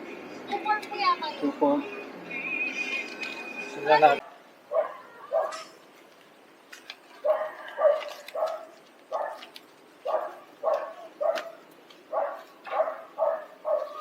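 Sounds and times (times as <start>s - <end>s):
dog barking: 4.2s - 5.7s, 7.2s - 14.0s.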